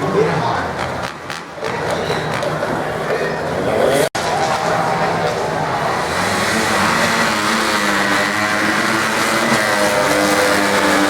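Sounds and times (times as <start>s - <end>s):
off-road racing engines running: 0.0s - 11.0s.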